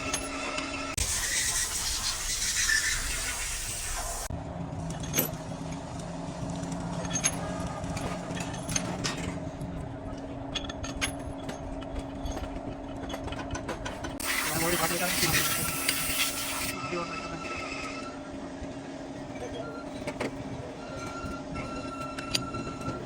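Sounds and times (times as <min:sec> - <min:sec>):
hissing: 0:01.0 - 0:04.3.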